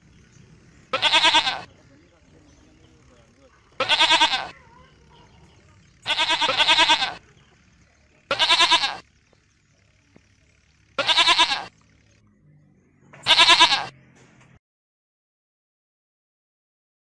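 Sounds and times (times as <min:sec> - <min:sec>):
goat bleating: 0:00.9 - 0:01.7, 0:03.7 - 0:04.6, 0:06.0 - 0:07.3, 0:08.3 - 0:09.1, 0:11.0 - 0:11.7, 0:13.2 - 0:13.9.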